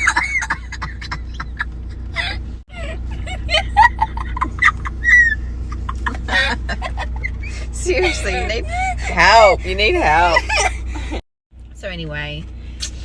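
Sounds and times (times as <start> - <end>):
stifled giggles: 0.0 - 9.1
car engine and road hum: 0.0 - 13.0.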